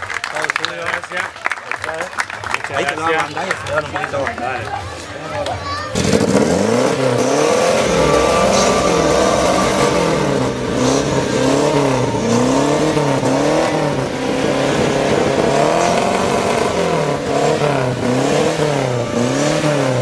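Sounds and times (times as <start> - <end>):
race car engine revving: 5.9 - 20.0.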